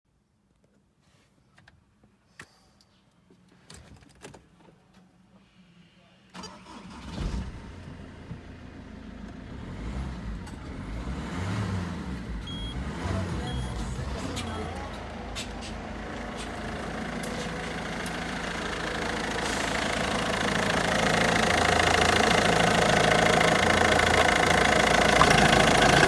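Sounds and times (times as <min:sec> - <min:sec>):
car engine starting and running: 0:06.4 - 0:26.0.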